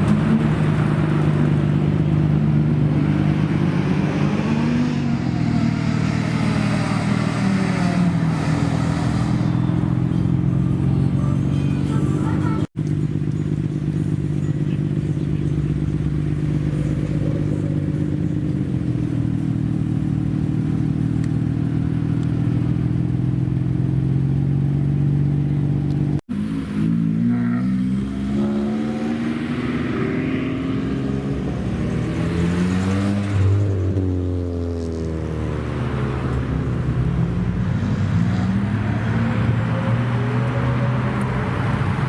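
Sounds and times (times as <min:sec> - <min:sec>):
car engine revving: 0:00.0 - 0:42.0
car engine idling with deep rumble: 0:09.6 - 0:26.2.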